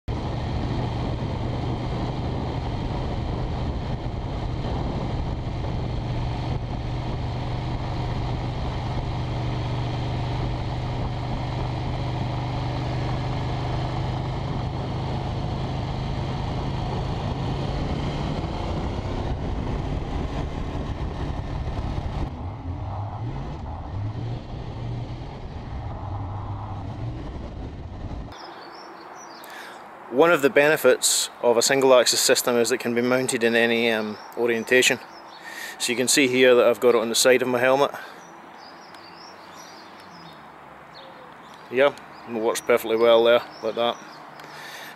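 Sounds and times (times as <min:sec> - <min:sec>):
motorcycle engine running: 0:00.1 - 0:28.8.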